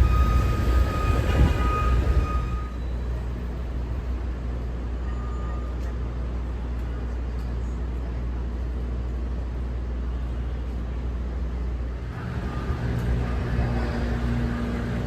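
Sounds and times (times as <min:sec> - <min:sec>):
city traffic rumble: 0:00.0 - 0:15.0
vehicle engine hum: 0:03.1 - 0:15.0.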